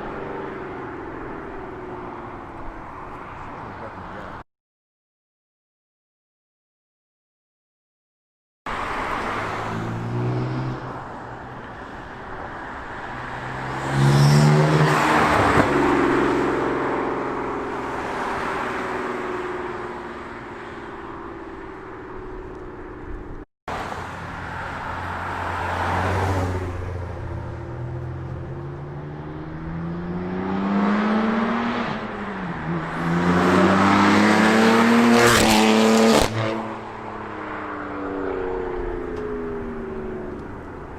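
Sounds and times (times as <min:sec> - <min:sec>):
car accelerating past: 0:09.0 - 0:11.0, 0:13.2 - 0:19.6, 0:25.0 - 0:36.9.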